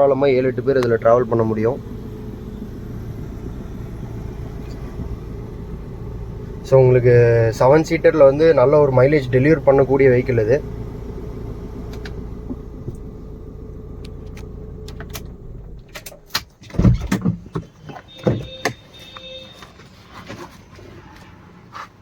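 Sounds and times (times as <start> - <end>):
diesel engine idling: 0.0 - 16.3
car door thumps: 4.6 - 5.7, 16.3 - 18.8
short electronic beep: 18.1 - 19.6.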